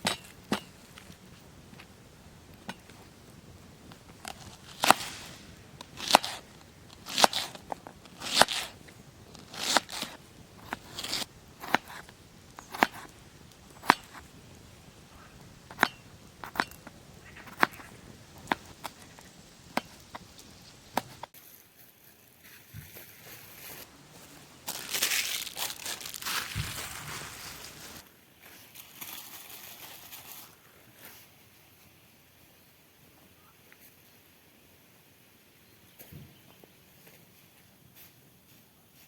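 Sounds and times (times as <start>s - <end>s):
chopping strokes: 4.8s - 6.4s, 9.4s - 13.1s.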